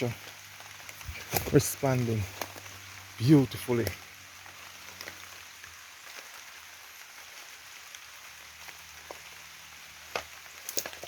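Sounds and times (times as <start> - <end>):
light rain hissing: 0.0 - 11.0
water dripping: 0.0 - 11.0.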